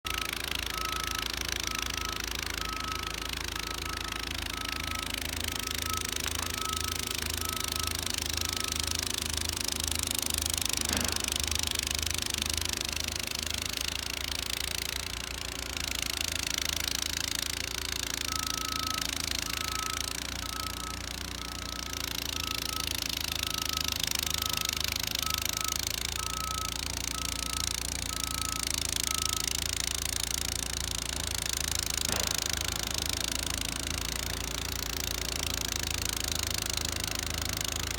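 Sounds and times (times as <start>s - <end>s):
snowblower engine running: 0.0s - 37.9s
short high beeps: 0.1s - 9.0s.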